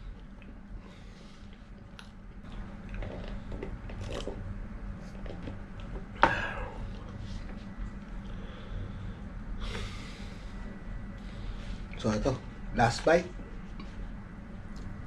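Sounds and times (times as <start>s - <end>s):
low steady hum: 0.0s - 15.0s
person chewing food: 1.4s - 4.4s.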